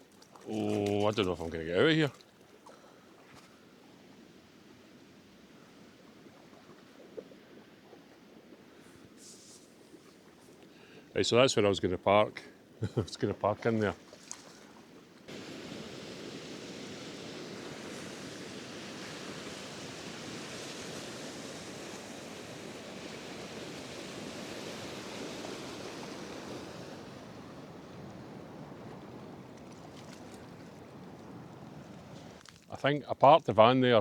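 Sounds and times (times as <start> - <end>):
stream rushing: 0.0 - 2.1, 15.3 - 32.4.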